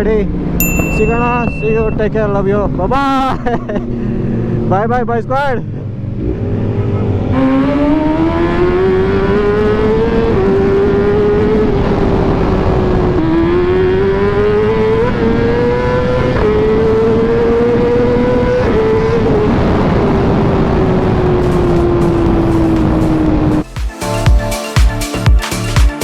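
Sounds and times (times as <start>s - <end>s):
motorcycle engine accelerating: 5.7s - 23.7s.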